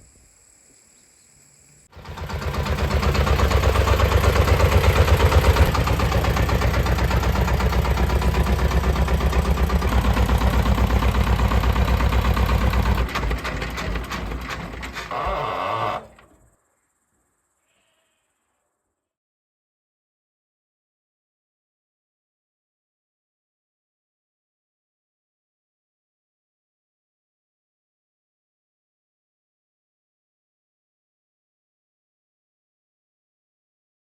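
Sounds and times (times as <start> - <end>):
engine running with pulsing beat: 2.0 - 15.2.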